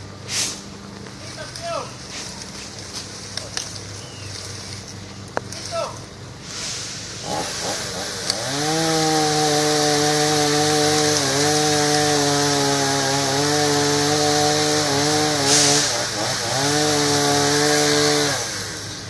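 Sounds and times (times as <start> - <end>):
chainsaw engine revving: 4.4 - 19.0.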